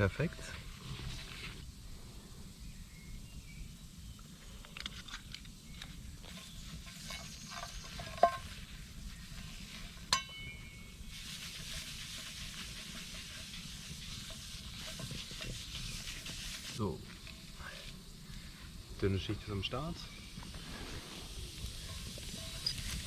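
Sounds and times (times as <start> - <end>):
steady high hiss: 0.0 - 23.0
metallic clinks: 10.1 - 10.9.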